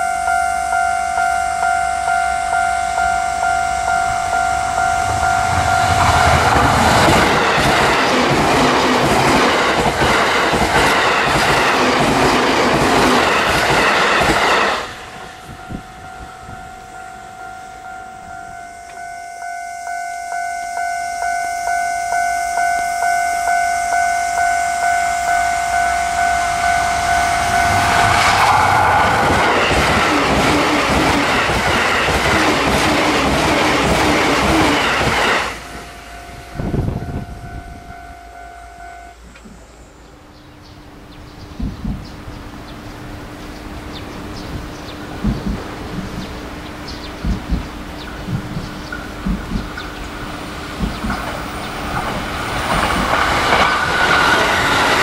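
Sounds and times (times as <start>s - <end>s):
steady high tone: 0.0s - 10.2s, 13.0s - 40.2s
train passing with loud rush: 0.0s - 55.0s
train wheels clattering over rails: 5.0s - 15.3s, 27.4s - 36.0s, 44.4s - 55.0s.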